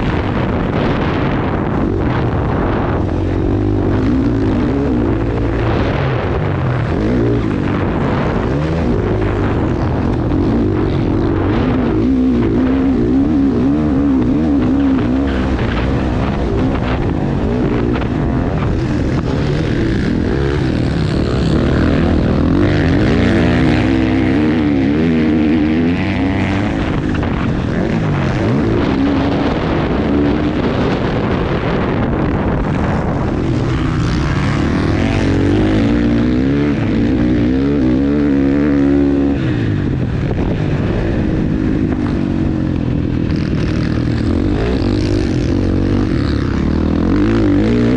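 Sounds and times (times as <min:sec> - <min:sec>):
motocross bike engine revving: 0:00.0 - 0:47.9.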